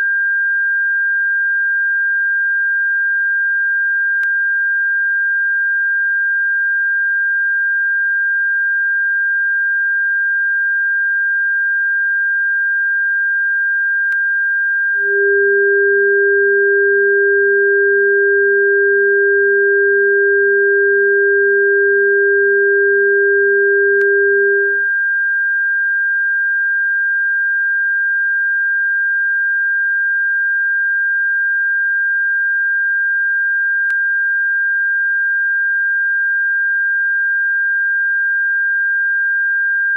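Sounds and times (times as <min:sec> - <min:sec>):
lower steady tone: 0:14.9 - 0:25.0
steady high tone: 0:15.0 - 0:24.8.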